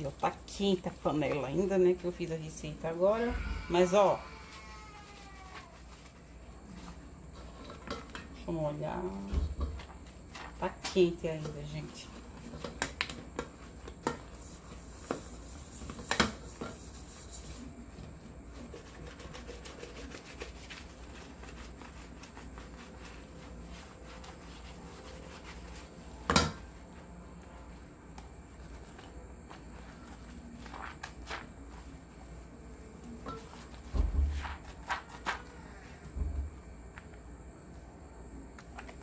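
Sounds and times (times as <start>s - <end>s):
hands rubbing soap: 18.7s - 25.9s.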